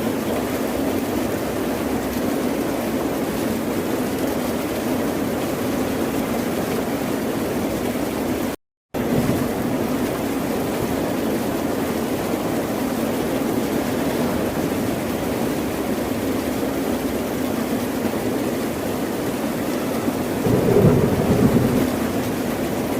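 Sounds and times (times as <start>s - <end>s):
ocean surf: 20.0s - 22.9s.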